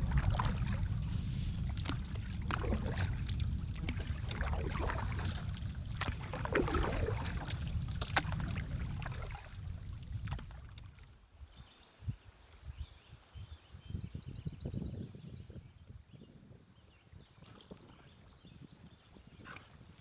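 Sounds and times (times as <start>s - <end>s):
paddle strokes splashing water: 0.0s - 11.1s
wind rumble on microphone: 0.0s - 20.0s.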